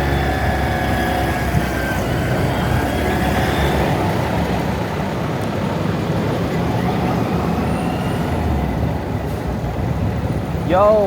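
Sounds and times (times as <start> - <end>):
motorbike engine rumbling: 0.0 - 7.2
street traffic: 0.0 - 11.0.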